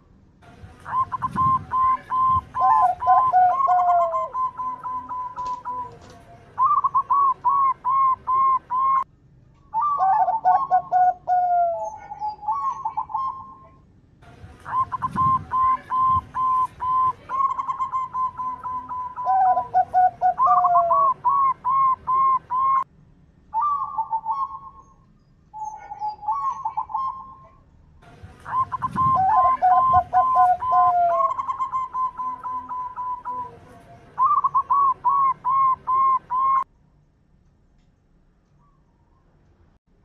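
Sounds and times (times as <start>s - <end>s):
doves cooing: 0.8s - 9.0s, 9.8s - 13.8s, 14.6s - 22.8s, 25.6s - 27.6s, 28.3s - 36.7s
lower-pitched bird cooing: 0.8s - 9.0s, 9.7s - 13.8s, 14.6s - 22.9s, 23.5s - 27.6s, 28.4s - 36.7s.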